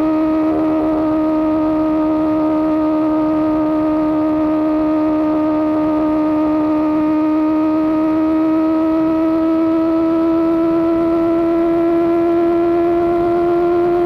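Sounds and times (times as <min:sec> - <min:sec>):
motorcycle engine at high revs: 0:00.0 - 0:14.0.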